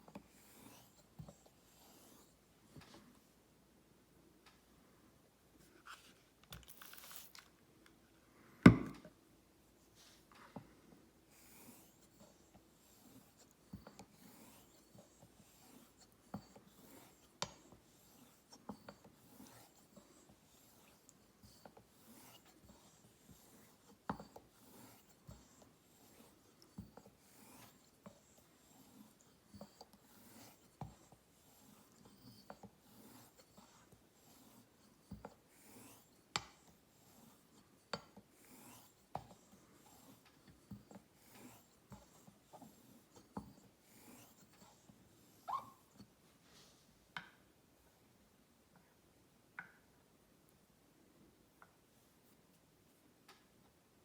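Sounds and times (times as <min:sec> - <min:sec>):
razor rubbing on whetstone: 0:11.4 - 0:46.0.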